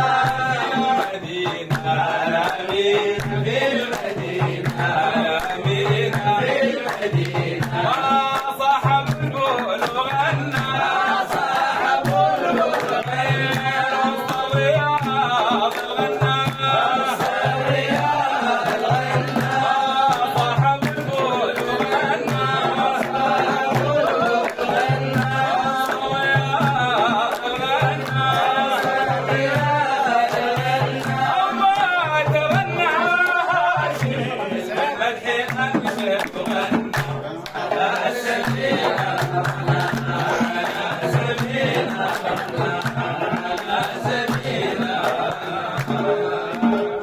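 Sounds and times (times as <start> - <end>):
low hand-drum beat: 0.0 - 34.7
person singing devotional song: 0.0 - 47.0.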